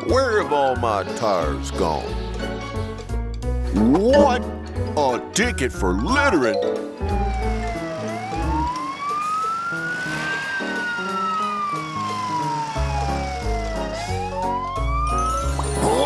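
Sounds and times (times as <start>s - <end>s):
background music: 0.0s - 16.0s
cartoon police siren wailing: 7.1s - 16.0s.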